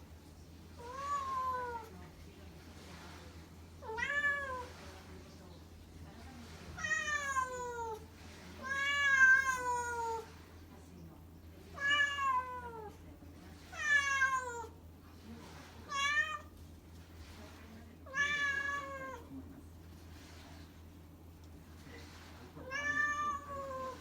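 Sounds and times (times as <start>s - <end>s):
cat meowing: 8.6s - 10.2s, 11.8s - 12.9s, 22.6s - 24.0s.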